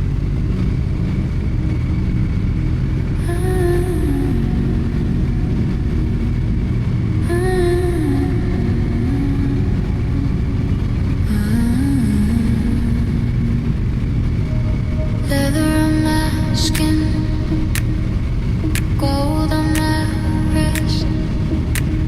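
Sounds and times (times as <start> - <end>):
motorcycle engine running: 0.0 - 22.0
deep house music: 0.8 - 22.0.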